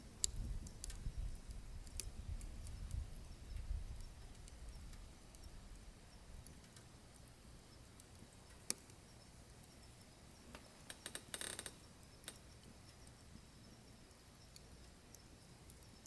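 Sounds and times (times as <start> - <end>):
wood crackling in a stove: 0.0 - 16.0.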